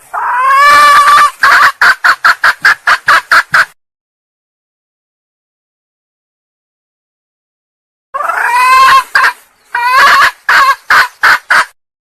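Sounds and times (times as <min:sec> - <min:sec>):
hen drawn-out call: 0:00.0 - 0:02.2, 0:08.2 - 0:11.7.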